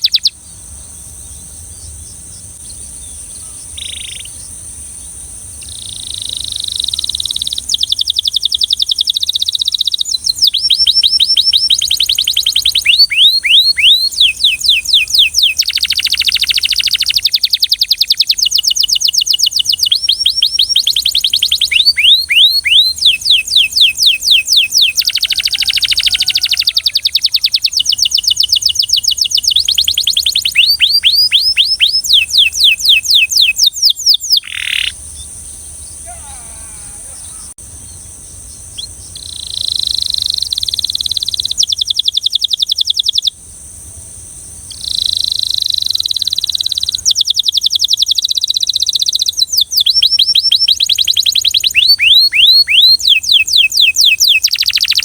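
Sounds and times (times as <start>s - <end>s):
steady high hiss: 0.0s - 22.1s, 34.4s - 48.8s
canary singing trills: 0.0s - 43.4s, 44.6s - 55.0s.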